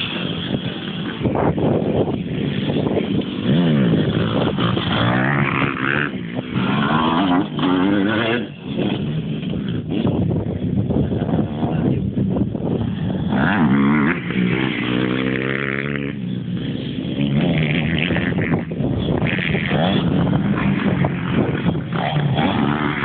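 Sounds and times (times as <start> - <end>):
motocross bike engines revving: 0.0 - 23.0.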